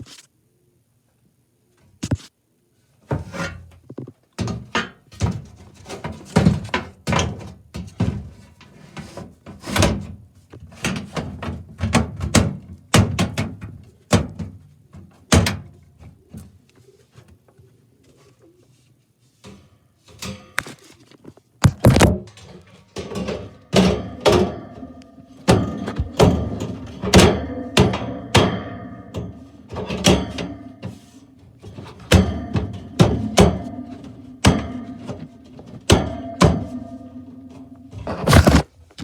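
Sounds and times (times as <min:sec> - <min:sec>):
furnace hum: 0:00.0 - 0:39.0
metal thunks and bangs: 0:21.6 - 0:38.7.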